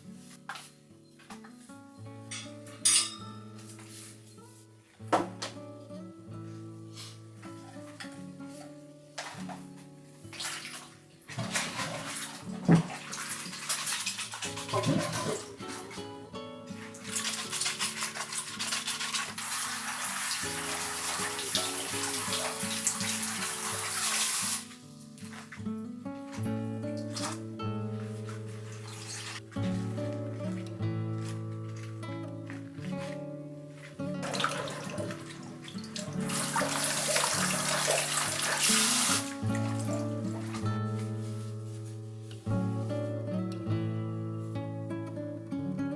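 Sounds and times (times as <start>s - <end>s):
water running from a tap: 11.4s - 16.1s, 16.8s - 24.7s, 34.2s - 40.6s
background music: 11.4s - 24.7s, 25.8s - 45.9s.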